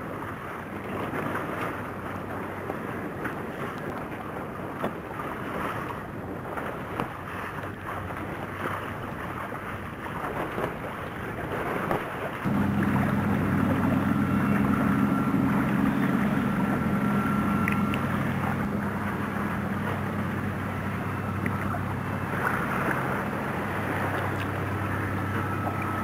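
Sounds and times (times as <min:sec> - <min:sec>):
motorboat engine droning: 0:12.2 - 0:26.0.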